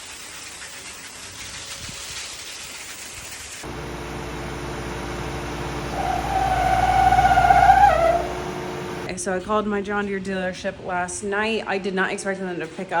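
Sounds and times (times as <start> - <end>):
vehicle engine hum from cab: 3.6 - 9.1.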